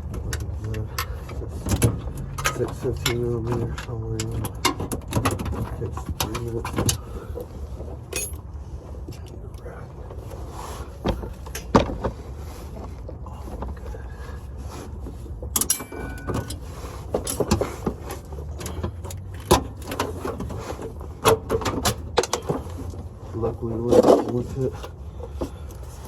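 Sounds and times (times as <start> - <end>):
hand tools clicking and knocking: 0.0 - 7.1, 15.6 - 20.6.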